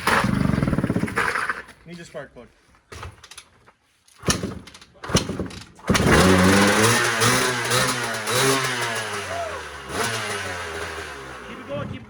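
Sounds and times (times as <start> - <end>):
engine being kicked over: 0.0 - 1.7, 4.2 - 12.0
dirt bike engine running unevenly: 6.0 - 12.0.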